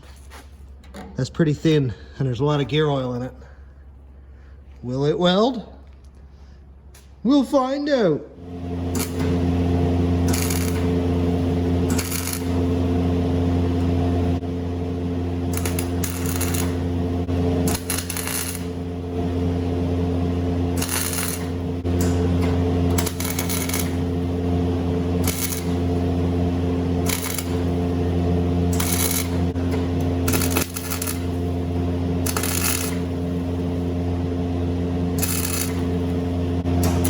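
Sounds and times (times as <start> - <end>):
steady electrical hum: 0.0 - 37.0
welder crackling: 8.7 - 37.0.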